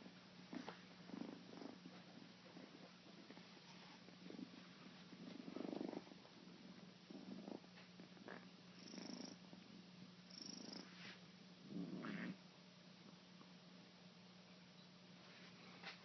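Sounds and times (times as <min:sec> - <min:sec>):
kitten purring: 0:00.0 - 0:12.4.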